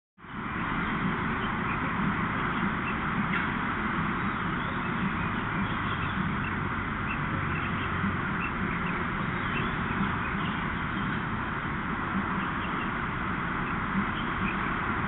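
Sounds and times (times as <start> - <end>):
outdoor background noise: 0.2 - 15.0
high bird chirps: 4.2 - 11.3.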